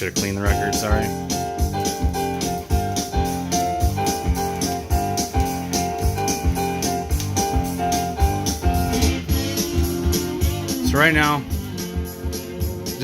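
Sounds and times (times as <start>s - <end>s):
repeating keyboard melody: 0.0s - 13.0s
steady thumping beat: 0.0s - 13.0s.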